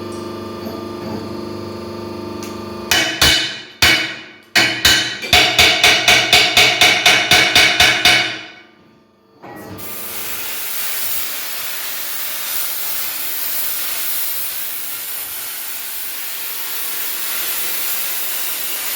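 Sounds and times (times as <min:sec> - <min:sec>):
hammer blows on metal: 0:02.9 - 0:08.6
compressed air hissing: 0:09.8 - 0:18.9.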